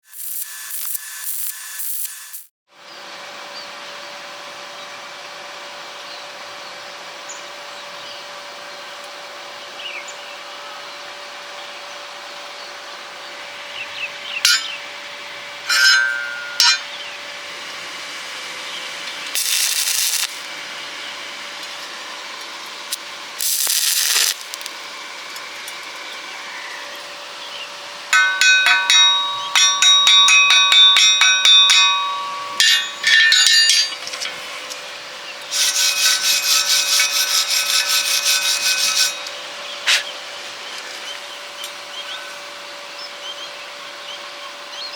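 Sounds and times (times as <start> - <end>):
welding arc crackling: 0.0 - 2.5, 19.0 - 26.2, 28.1 - 34.8, 35.4 - 42.4
steady background hum: 2.9 - 44.9
steel pieces clinking: 14.5 - 14.8, 15.7 - 16.9, 19.4 - 20.5, 28.1 - 34.8, 35.5 - 39.4.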